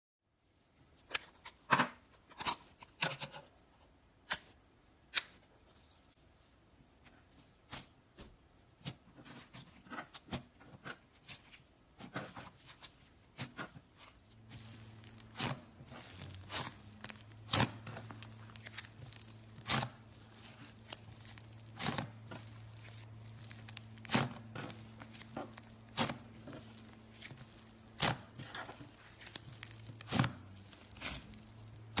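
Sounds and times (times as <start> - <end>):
slime squishing and crackling: 12.0 - 32.0.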